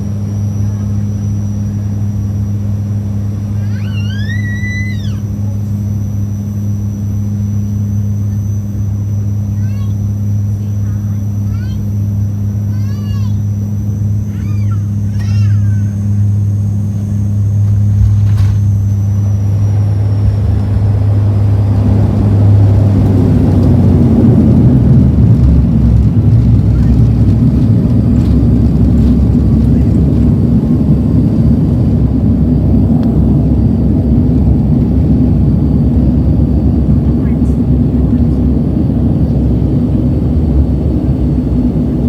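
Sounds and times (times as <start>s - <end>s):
propeller drone in cabin: 0.0s - 42.0s
rough rumble: 16.4s - 42.0s.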